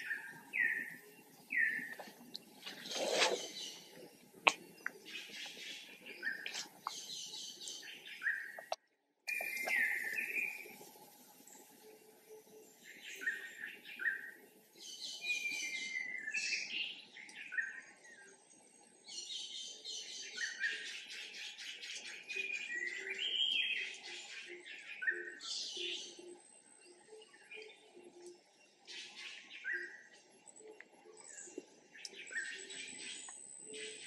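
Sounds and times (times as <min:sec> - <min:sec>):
faint low bird calls: 0:00.0 - 0:10.9
songbirds chirping and trilling: 0:00.0 - 0:34.0.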